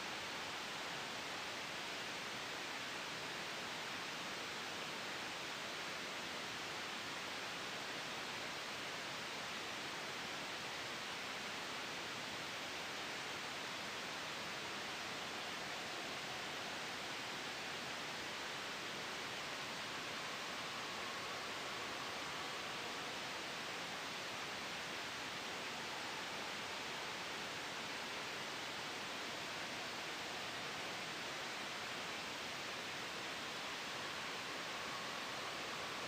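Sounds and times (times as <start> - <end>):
gentle wind: 0.0 - 36.0
soft white noise hiss: 0.0 - 36.0.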